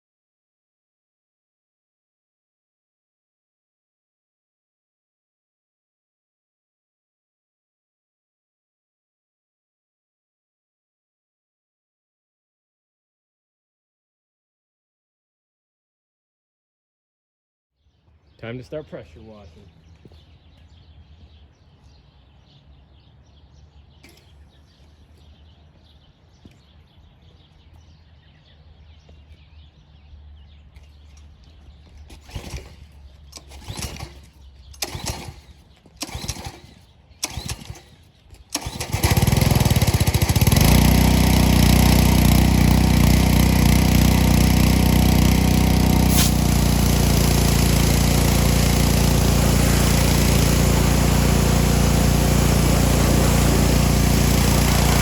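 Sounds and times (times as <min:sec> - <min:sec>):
small gasoline engine running: 0:31.2 - 0:55.0
engine rope pulls with coughs: 0:31.9 - 0:39.3, 0:41.5 - 0:55.0.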